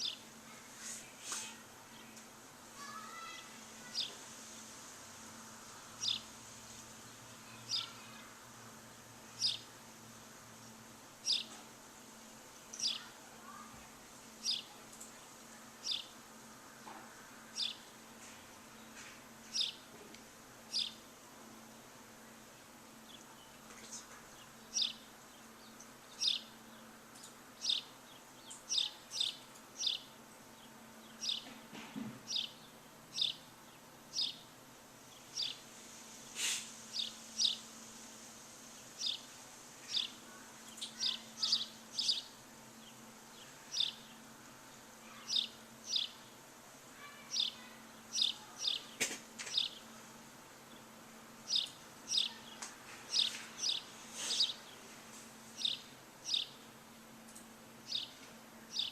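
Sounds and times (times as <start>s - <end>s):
bird chirping: 0.0s - 0.2s, 6.0s - 6.3s, 7.5s - 8.2s, 9.4s - 9.7s, 11.2s - 11.6s, 12.7s - 13.6s, 14.4s - 15.2s, 15.8s - 16.1s, 17.5s - 17.9s, 18.8s - 19.9s, 20.7s - 21.0s, 23.0s - 31.5s, 32.3s - 34.5s, 35.1s - 35.6s, 36.4s - 37.7s, 38.9s - 44.2s, 45.0s - 46.4s, 47.0s - 49.9s, 50.7s - 54.9s, 55.5s - 56.7s, 57.3s - 58.9s.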